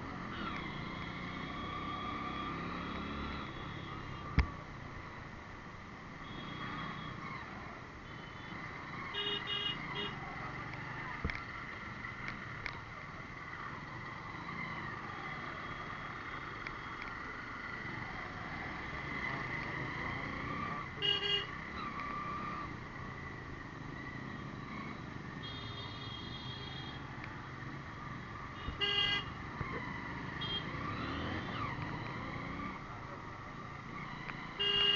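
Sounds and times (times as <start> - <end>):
road traffic noise: 0.0 - 34.9
vehicle horns honking: 9.2 - 10.2, 21.0 - 21.6, 28.6 - 29.4, 30.4 - 31.2, 34.6 - 34.9.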